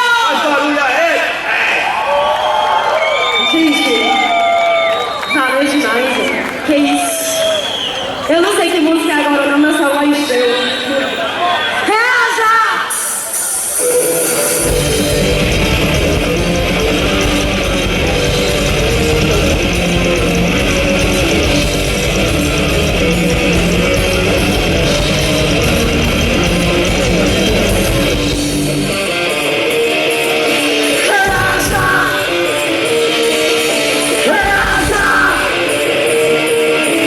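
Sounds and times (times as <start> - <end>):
live rock band playing: 12.9 - 37.0
person singing: 30.4 - 37.0.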